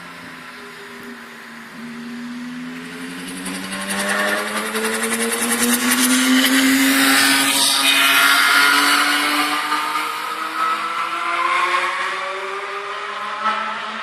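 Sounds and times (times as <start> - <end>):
racing car engine accelerating: 1.6 - 14.0.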